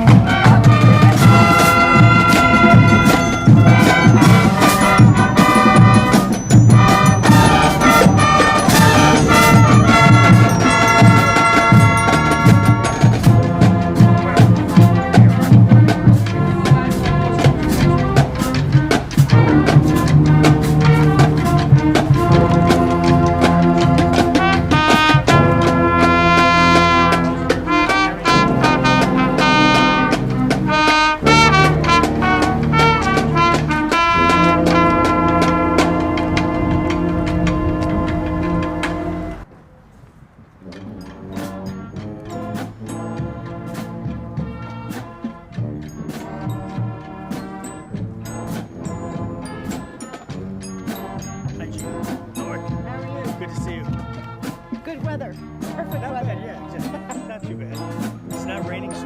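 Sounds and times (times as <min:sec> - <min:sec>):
brass band playing: 0:00.0 - 0:39.5, 0:40.6 - 0:59.0
drums beating: 0:00.0 - 0:39.5, 0:40.6 - 0:59.0
trumpets and trombones: 0:00.0 - 0:39.5, 0:40.2 - 0:59.0.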